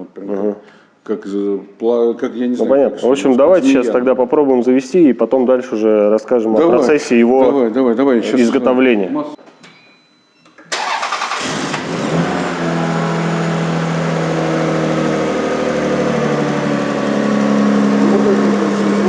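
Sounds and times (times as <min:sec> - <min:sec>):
car engine starting and idling: 0:10.7 - 0:19.0.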